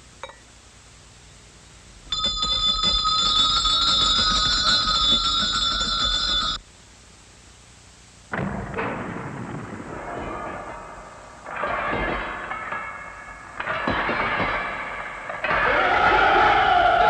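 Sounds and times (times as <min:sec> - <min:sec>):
bells ringing rapidly: 0:02.1 - 0:06.6.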